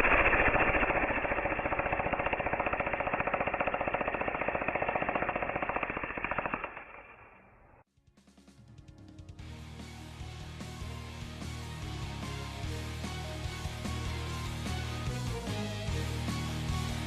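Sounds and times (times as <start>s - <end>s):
jackhammer hammering: 0.0s - 7.6s
music: 7.9s - 17.0s.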